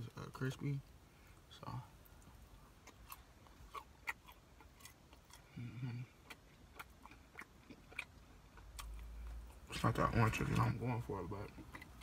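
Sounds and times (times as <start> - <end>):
crunchy chewing: 2.0 - 10.7, 11.4 - 12.0.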